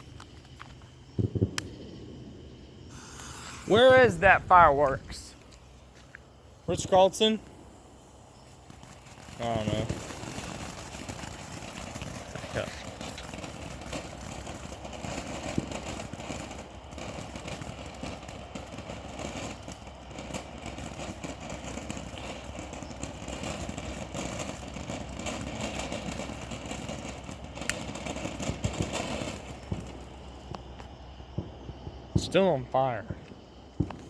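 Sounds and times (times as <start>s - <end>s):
firework burning with hiss: 0.0s - 34.0s
firework crackles and pops: 0.0s - 34.0s.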